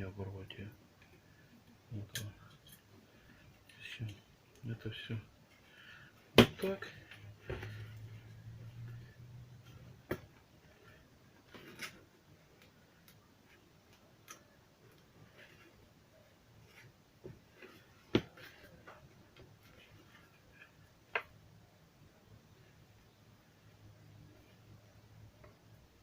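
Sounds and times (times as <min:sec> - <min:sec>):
small tools and plastic parts clicking: 0:13.9 - 0:15.0.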